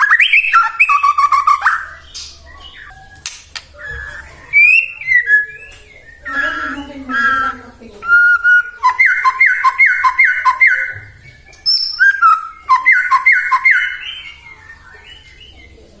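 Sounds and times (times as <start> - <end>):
songbird whistling downward notes: 3.8 - 15.8.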